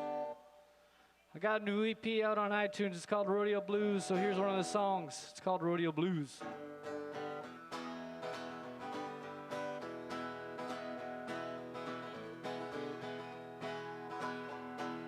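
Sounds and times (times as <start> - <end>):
acoustic guitar strumming chords: 2.6 - 5.2, 6.4 - 15.0.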